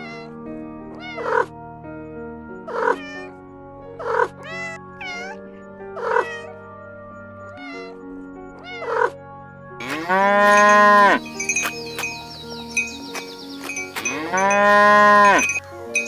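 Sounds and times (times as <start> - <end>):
background music: 0.0 - 16.0
cat meowing: 0.9 - 1.5, 2.7 - 3.4, 4.4 - 6.6, 7.6 - 8.0, 8.6 - 9.2.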